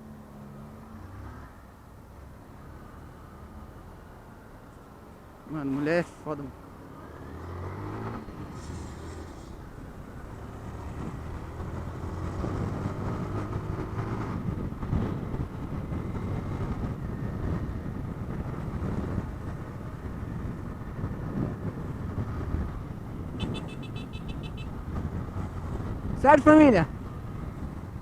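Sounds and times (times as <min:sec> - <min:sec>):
road rumble: 0:00.0 - 0:28.0
wind: 0:00.0 - 0:28.0
motorcycle engine hum: 0:06.5 - 0:28.0.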